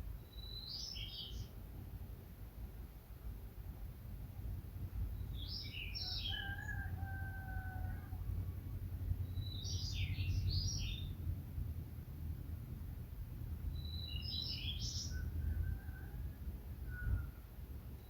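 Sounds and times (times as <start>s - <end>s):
birds chirping: 9.2s - 11.2s, 13.8s - 15.2s.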